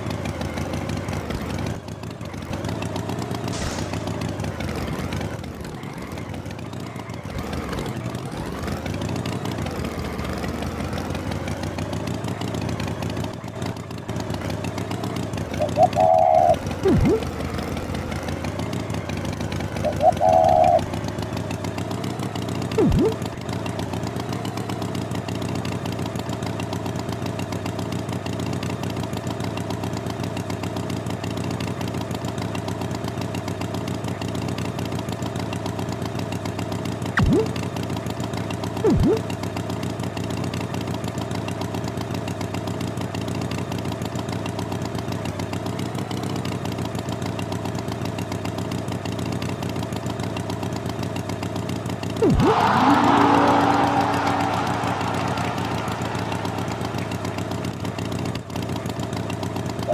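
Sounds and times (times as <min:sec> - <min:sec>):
cartoon tractor engine: 0:00.0 - 0:59.9
falling pitch glides: 0:22.8 - 0:23.2, 0:52.2 - 0:58.3.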